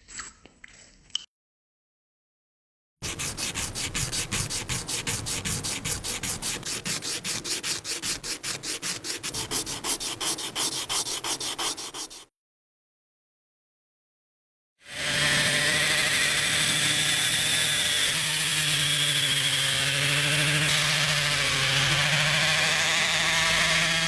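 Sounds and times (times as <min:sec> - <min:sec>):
rapid rubbing on a surface: 0:03.0 - 0:12.3.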